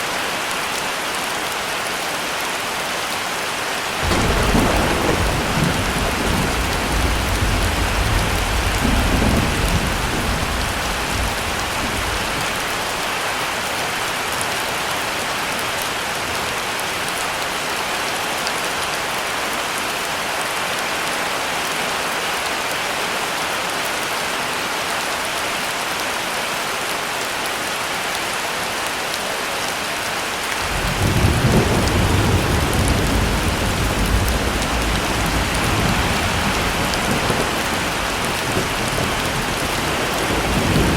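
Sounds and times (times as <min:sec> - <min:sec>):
heavy rain falling: 0:00.0 - 0:40.9
low thunder rumbling: 0:04.0 - 0:12.4, 0:30.6 - 0:40.9.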